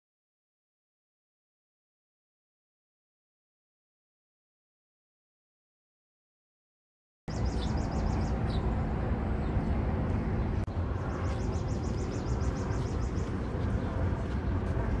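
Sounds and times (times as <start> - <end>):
bird chirping: 7.3 - 8.8, 10.4 - 14.9
low outdoor rumble: 7.3 - 15.0.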